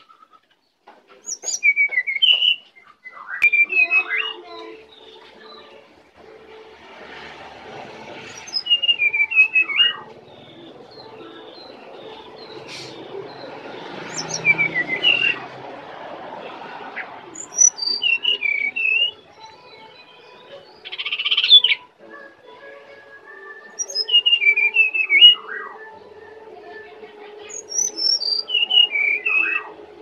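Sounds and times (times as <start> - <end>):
bird singing whistled notes: 1.2 - 5.7, 8.3 - 15.4, 17.4 - 26.5, 27.5 - 29.8.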